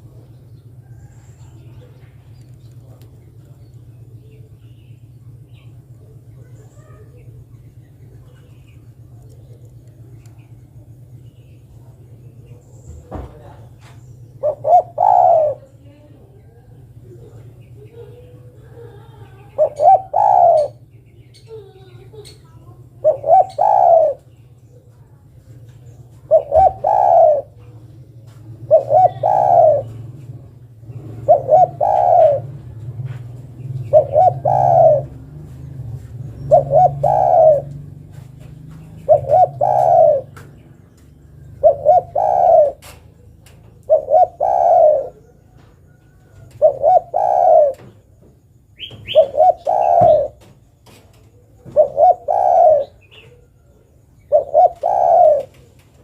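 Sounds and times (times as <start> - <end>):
dove cooing: 0.0 - 3.6, 11.8 - 25.0, 25.9 - 56.0.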